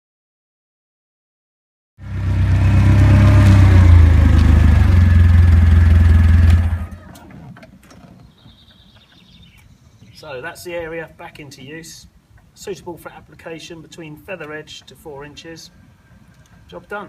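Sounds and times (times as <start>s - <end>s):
vehicle engine driving past: 2.0s - 7.1s
faint clicks: 16.3s - 16.6s.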